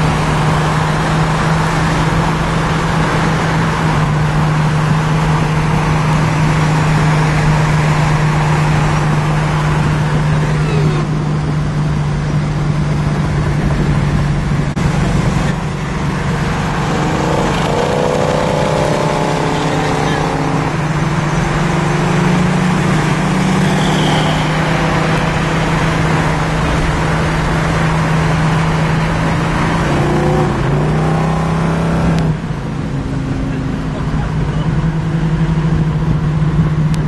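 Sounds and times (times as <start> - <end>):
car engine cruising: 0.0 - 37.0
road noise: 0.0 - 37.0
wind noise: 1.6 - 19.4.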